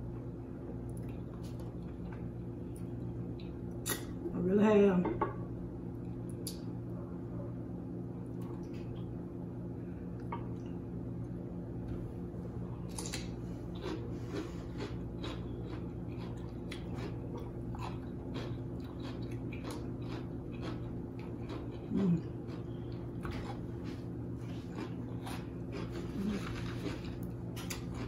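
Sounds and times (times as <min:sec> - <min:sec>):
steady low hum: 0:00.0 - 0:28.0
crunching raw cucumber: 0:12.8 - 0:28.0.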